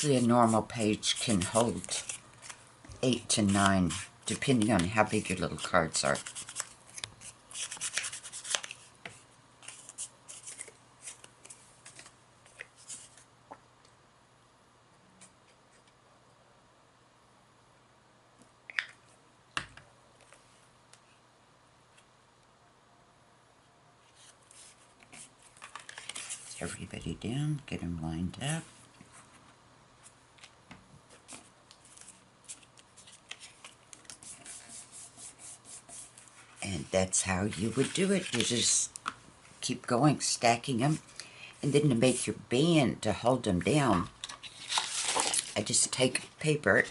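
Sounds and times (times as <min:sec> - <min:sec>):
paper rustling: 0:00.0 - 0:13.3, 0:24.0 - 0:26.8, 0:31.1 - 0:39.1, 0:44.2 - 0:46.2.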